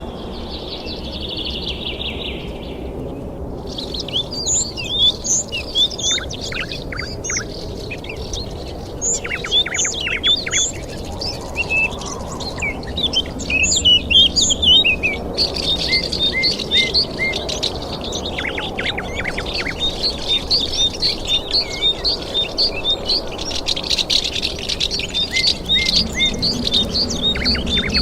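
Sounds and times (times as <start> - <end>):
birds chirping and whistling: 0.8 - 28.0
low rushing background: 16.6 - 28.0.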